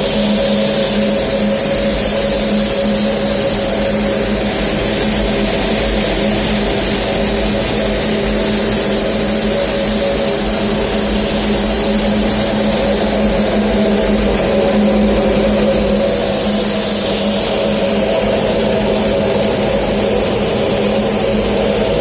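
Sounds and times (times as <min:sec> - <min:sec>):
gas burner rushing hiss: 0:00.0 - 0:22.0.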